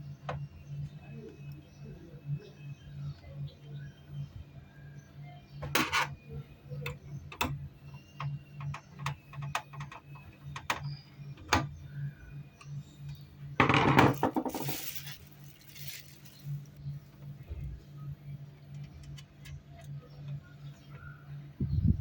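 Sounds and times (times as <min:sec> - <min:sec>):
steady low hum: 0:00.0 - 0:22.0
small hard objects clicking: 0:14.0 - 0:16.8
rough scraping rustle: 0:14.1 - 0:16.8.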